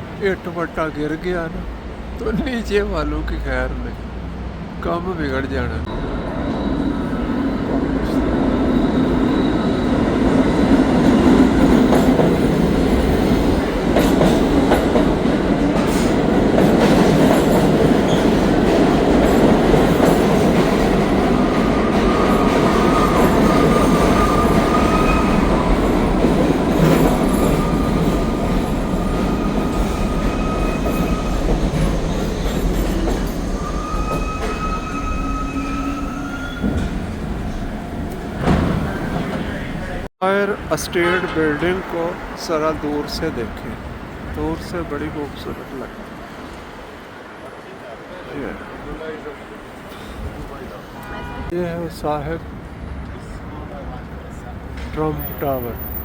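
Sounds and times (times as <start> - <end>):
subway train rumble and clatter: 0.0 - 56.0
high wheel squeal: 6.0 - 10.2, 21.4 - 26.2, 26.8 - 40.0.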